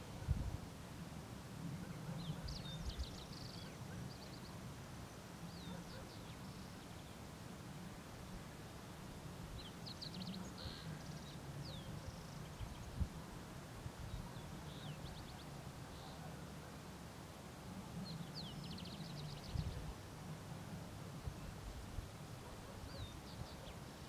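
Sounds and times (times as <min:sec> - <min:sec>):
songbird chirping: 0:01.8 - 0:07.4, 0:08.2 - 0:13.2, 0:13.9 - 0:20.2, 0:22.0 - 0:24.0.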